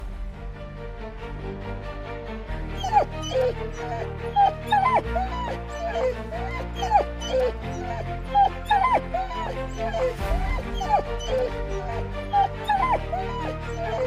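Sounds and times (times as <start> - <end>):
background music: 0.0 - 14.0
dog whimpering: 2.8 - 14.0.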